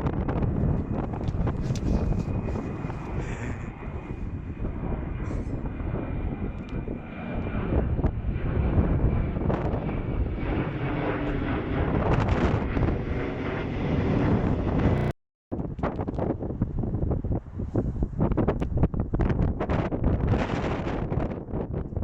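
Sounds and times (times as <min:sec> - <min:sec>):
airliner engines roaring: 0:00.0 - 0:15.1
wind buffeting microphone: 0:00.0 - 0:22.0.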